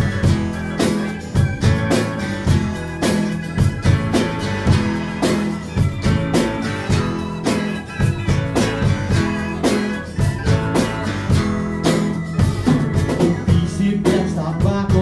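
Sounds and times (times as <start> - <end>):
bass guitar: 0.0 - 15.0
drum kit steady beat: 0.0 - 15.0
electric guitar: 0.0 - 15.0.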